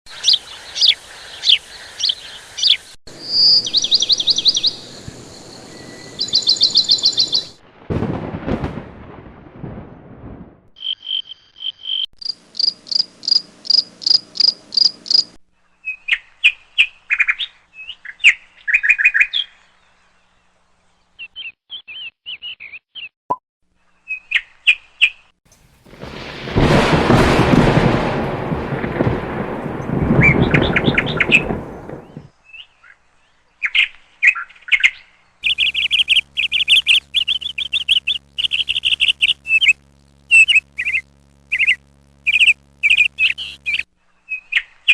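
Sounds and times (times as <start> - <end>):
small birds chirping: 0.1 - 7.6, 10.8 - 23.1, 29.3 - 44.9.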